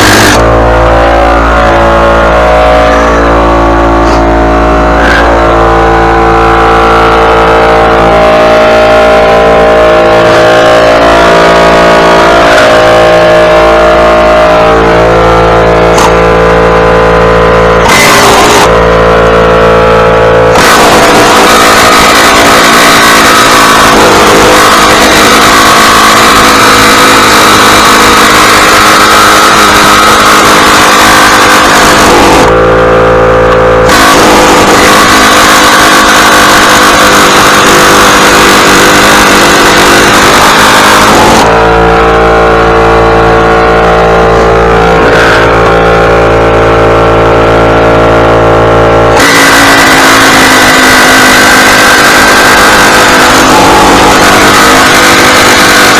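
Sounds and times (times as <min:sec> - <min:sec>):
small gasoline engine running: 0:00.0 - 0:00.8, 0:14.8 - 0:41.7, 0:49.1 - 0:55.9.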